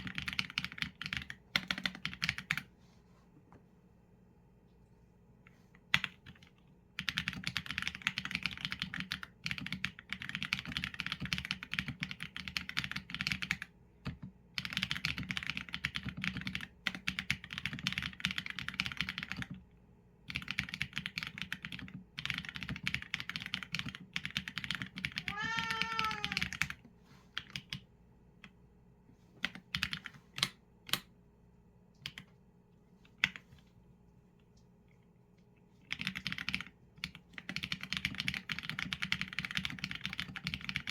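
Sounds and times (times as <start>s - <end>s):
mechanical keyboard typing: 0.0s - 2.7s, 5.9s - 19.6s, 20.2s - 26.8s, 27.4s - 27.8s, 29.4s - 31.0s, 35.8s - 40.9s
cat meowing: 25.2s - 26.5s.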